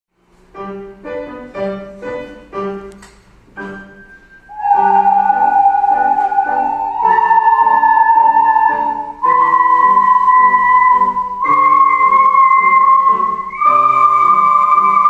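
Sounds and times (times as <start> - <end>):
piano chords: 0.2 - 15.0
ocarina playing: 3.6 - 15.0.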